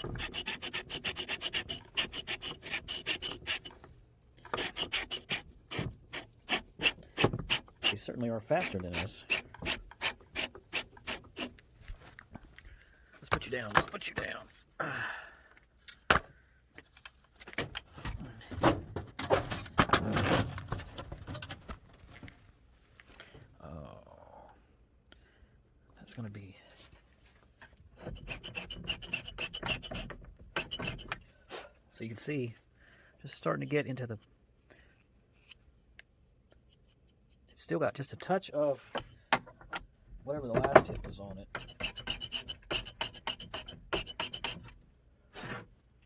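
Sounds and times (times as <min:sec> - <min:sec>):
trimmer rasping cue shaft: 0:00.0 - 0:03.8, 0:04.4 - 0:11.6.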